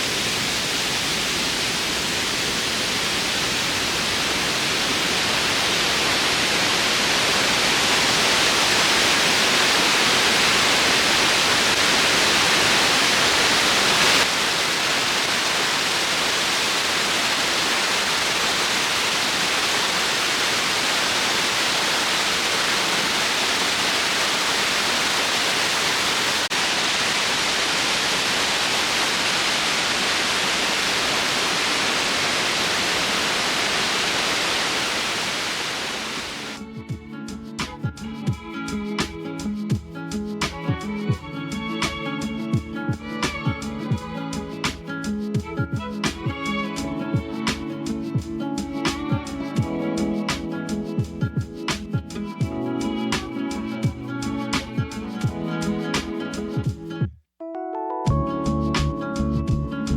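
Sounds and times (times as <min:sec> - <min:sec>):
waterfall rushing: 0:00.0 - 0:36.6.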